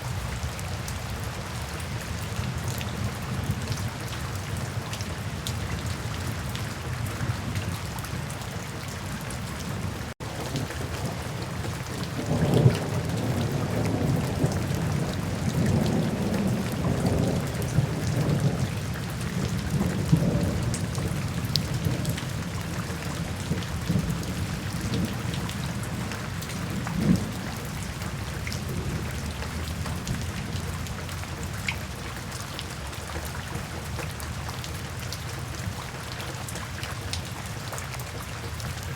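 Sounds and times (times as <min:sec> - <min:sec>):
steady rain falling: 0:00.0 - 0:38.9
low rumble of thunder: 0:09.2 - 0:32.7.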